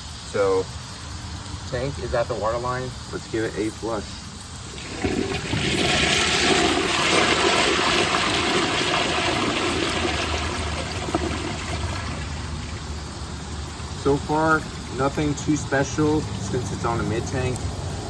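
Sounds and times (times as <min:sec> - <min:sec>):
toilet flushing rushing water: 0:04.6 - 0:17.1.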